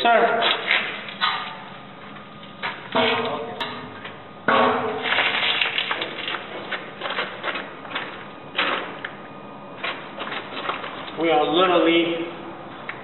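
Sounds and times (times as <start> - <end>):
metal clanks ringing: 2.9 - 5.0.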